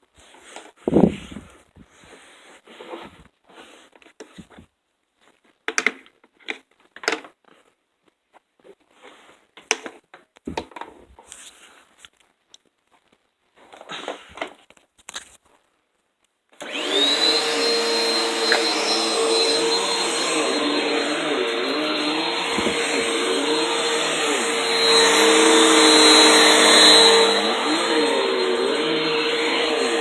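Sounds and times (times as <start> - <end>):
vacuum cleaner running: 16.6 - 30.0.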